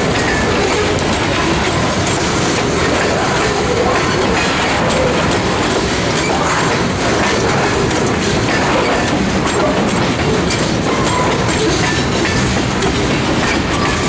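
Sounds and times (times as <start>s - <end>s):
train wheels clacking over rail joints: 0.0s - 14.0s.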